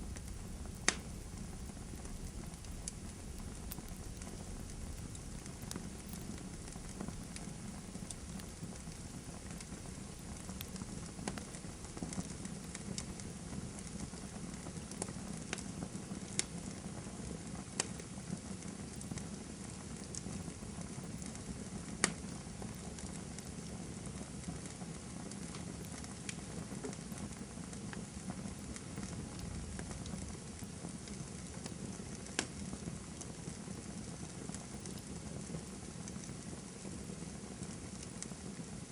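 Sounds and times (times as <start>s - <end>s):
sharp pops of burning wood: 0.0s - 16.8s
campfire crackling: 0.0s - 38.9s
low rush of flames: 0.0s - 38.9s.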